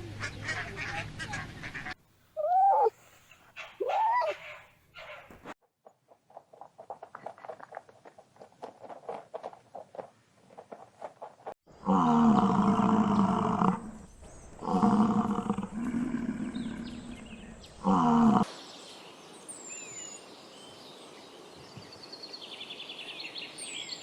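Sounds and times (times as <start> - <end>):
dog whining yelps: 2.4 - 2.9, 3.8 - 4.6.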